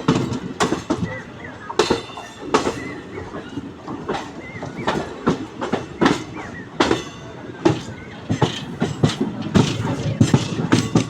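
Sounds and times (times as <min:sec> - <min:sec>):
train wheels clattering over rail joints: 0:00.0 - 0:11.0.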